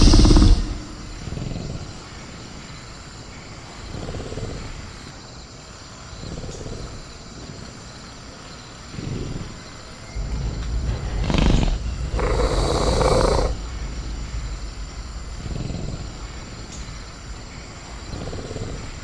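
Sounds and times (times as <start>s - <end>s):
night insects chirring: 0.0s - 19.0s
creature growling: 10.2s - 16.3s.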